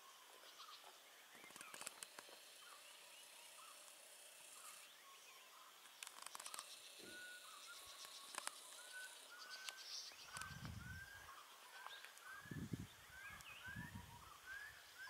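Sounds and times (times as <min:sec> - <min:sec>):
faint bird chirps: 0:00.0 - 0:15.0
bird whistling rising notes: 0:07.0 - 0:15.0.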